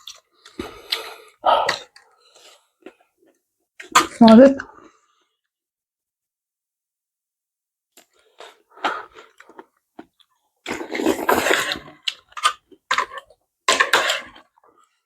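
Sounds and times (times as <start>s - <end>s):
chewing and mouth sounds: 0.0s - 3.1s
loud slurp: 10.7s - 11.9s.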